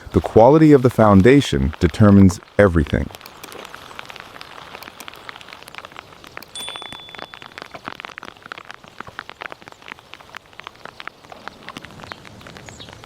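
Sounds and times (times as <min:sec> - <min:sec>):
light ticks and crackles: 0:00.0 - 0:13.0
high steady tone: 0:06.6 - 0:07.8.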